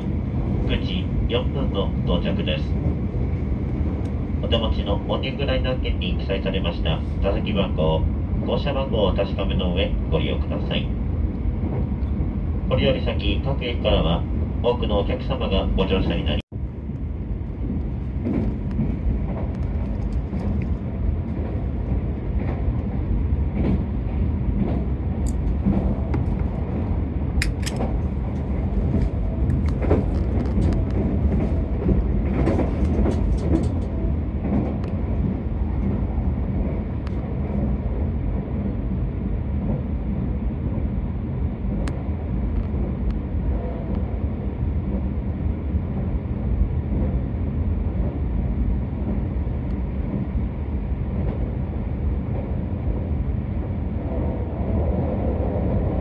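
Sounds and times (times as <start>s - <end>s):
train wheels rumbling on rail: 0.0s - 56.0s
sharp clicks: 27.4s - 27.9s.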